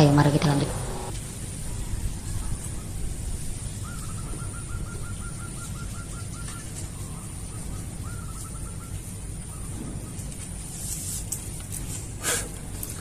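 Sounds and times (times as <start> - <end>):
low steady rumble: 0.0 - 3.8.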